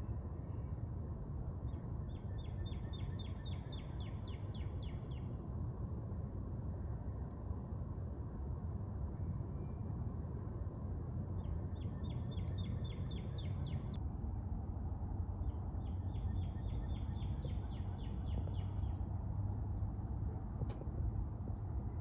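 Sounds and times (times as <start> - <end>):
low background rumble: 0.0 - 22.0
songbird trilling: 11.8 - 14.0.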